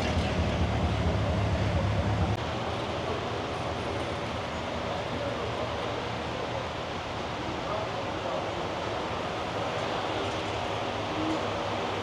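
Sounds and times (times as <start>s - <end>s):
vehicle engine rumble: 0.0s - 3.4s
outdoor background noise: 0.0s - 12.0s.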